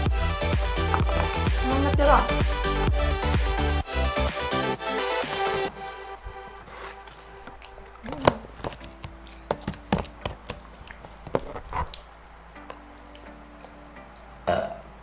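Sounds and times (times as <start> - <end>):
chewing: 6.5 - 12.1.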